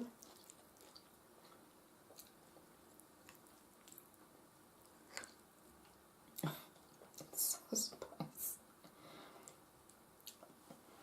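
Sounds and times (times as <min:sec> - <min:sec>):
chewing soft food: 0:00.1 - 0:07.3, 0:09.4 - 0:10.6.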